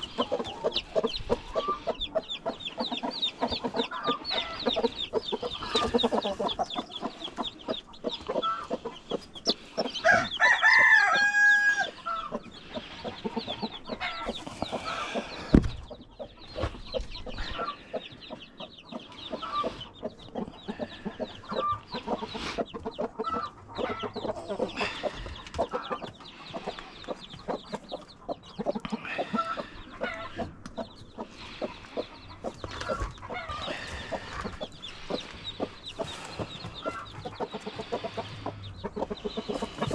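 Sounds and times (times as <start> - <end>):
chickens clucking: 0.0 - 39.9
rooster crowing: 10.0 - 12.2.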